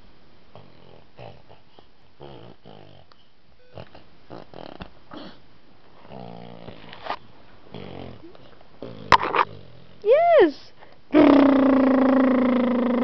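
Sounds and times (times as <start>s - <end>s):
child imitating car engine: 11.1s - 13.0s.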